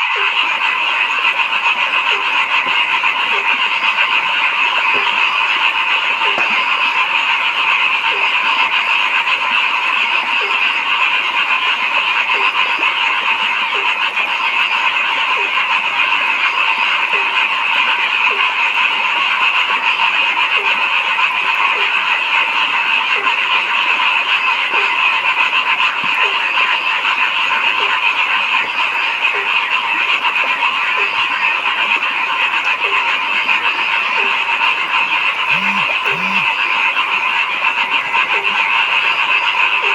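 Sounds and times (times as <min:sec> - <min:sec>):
chorus of frogs calling: 0:00.1 - 0:36.6
lower-pitched frog call: 0:35.4 - 0:36.6.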